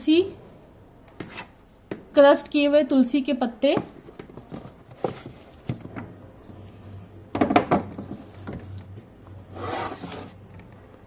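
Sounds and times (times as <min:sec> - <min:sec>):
containers scraping on shelf: 0:09.4 - 0:10.4.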